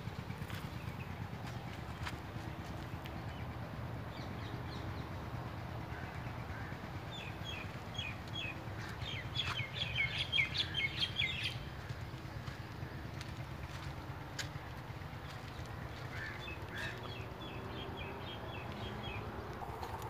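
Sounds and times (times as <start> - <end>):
bird chirping: 7.1 - 12.2.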